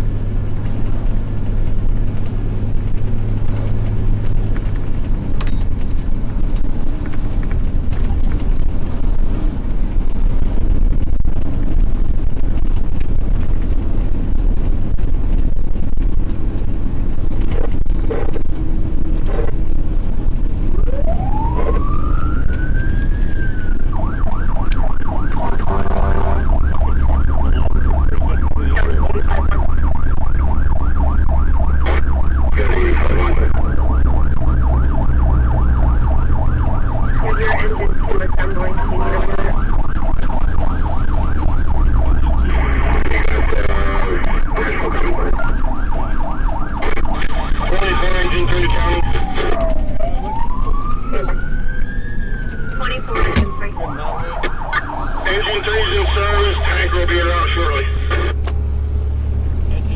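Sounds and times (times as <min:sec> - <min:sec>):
fire engine droning: 0:00.0 - 0:59.9
road noise: 0:00.0 - 0:59.9
siren wailing and yelping: 0:20.4 - 0:58.4.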